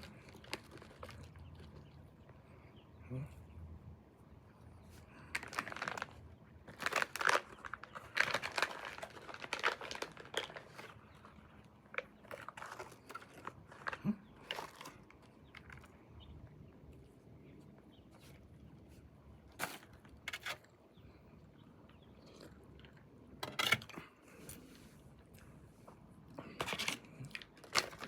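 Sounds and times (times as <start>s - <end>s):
plastic packaging crinkling: 0.0s - 1.9s, 5.2s - 15.9s, 26.6s - 28.0s.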